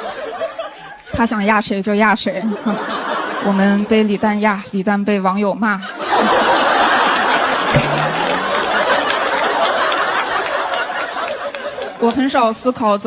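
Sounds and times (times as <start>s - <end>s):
audience laughing: 2.4s - 3.7s, 5.9s - 12.1s
audience clapping: 7.0s - 12.2s.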